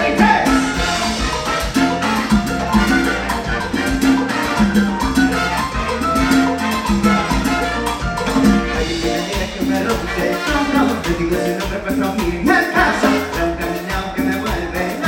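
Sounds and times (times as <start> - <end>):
live salsa band playing: 0.0 - 15.0.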